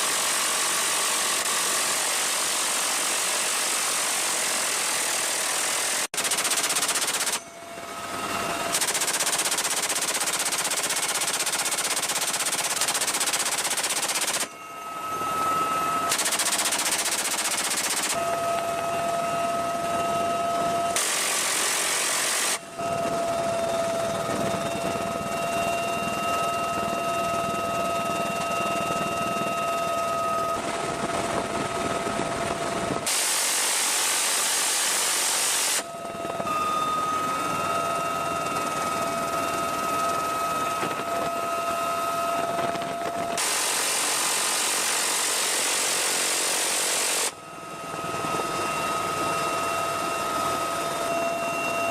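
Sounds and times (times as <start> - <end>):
helicopter turbine whine: 0.0 - 51.9
helicopter door guns firing bursts: 6.2 - 7.4, 8.7 - 14.5, 16.1 - 18.2.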